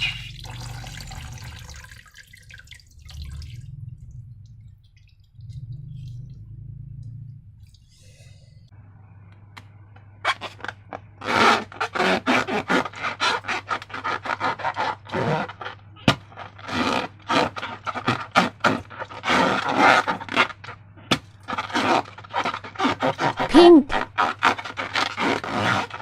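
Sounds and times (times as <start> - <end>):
slime squelching and rubbing: 10.2 - 20.8, 21.4 - 26.0.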